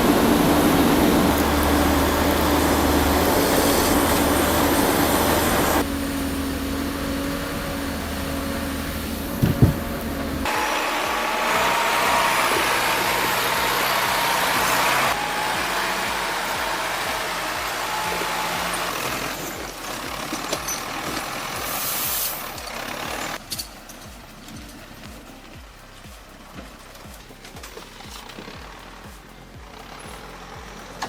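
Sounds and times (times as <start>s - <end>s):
heavy machinery engines running: 0.0s - 31.0s
sharp knocks: 9.4s - 9.9s.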